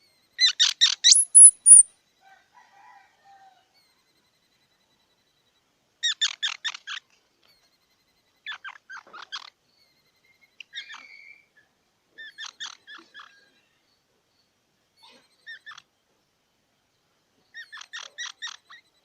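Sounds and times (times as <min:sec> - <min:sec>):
squirrel chirping: 0:00.4 - 0:01.9.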